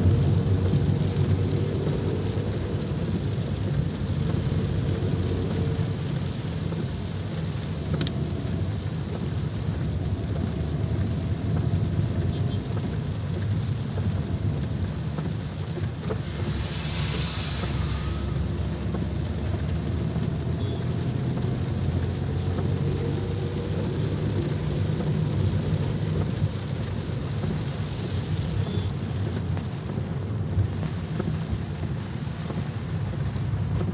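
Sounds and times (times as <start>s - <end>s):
rain hiss: 0.0s - 33.9s
vehicle engine rumble: 0.0s - 33.9s.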